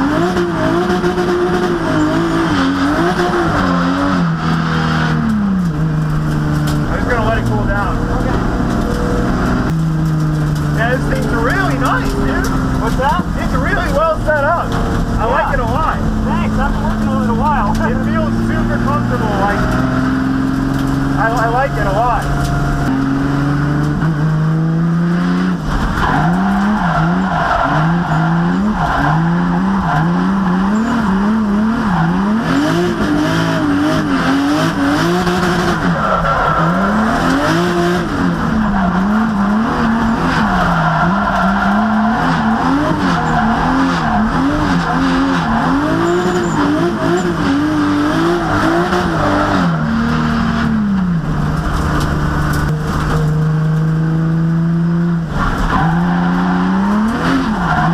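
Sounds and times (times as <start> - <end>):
car engine revving: 0.0 - 57.9
tyres squealing: 35.3 - 49.9.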